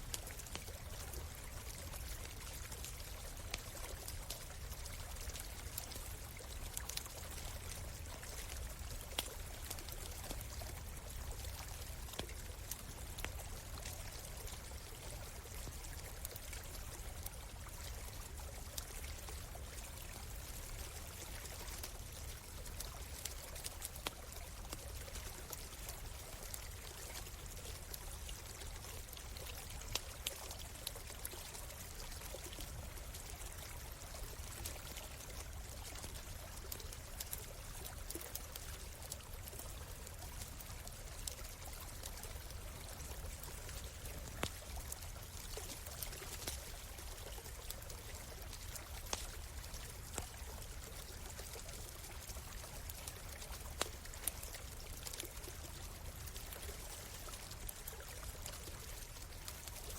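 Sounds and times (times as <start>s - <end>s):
campfire popping and crackling: 0.0s - 59.9s
stream flowing: 0.0s - 59.9s.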